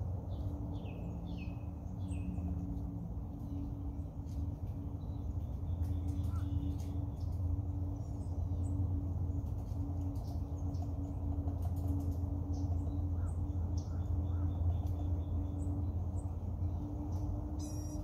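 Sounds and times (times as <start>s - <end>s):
faint steady hum: 0.0s - 18.0s
steady low rumble: 0.0s - 18.0s
bird chirps and calls: 12.6s - 18.0s.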